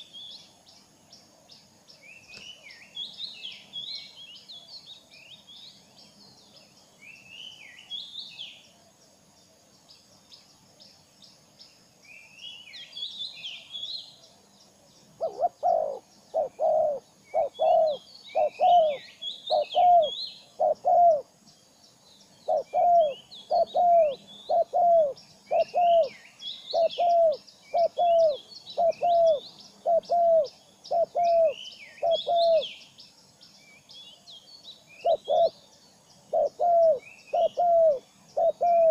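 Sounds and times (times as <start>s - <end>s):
small birds chirping: 0.0s - 38.9s
bird low downward hoot: 15.2s - 21.3s, 22.4s - 32.8s, 35.0s - 35.7s, 36.3s - 38.9s.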